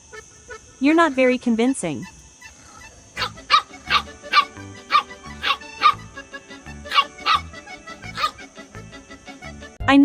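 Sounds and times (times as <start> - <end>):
dog barking: 2.6 - 6.1, 6.9 - 7.5, 8.1 - 8.4
background music: 2.6 - 10.0.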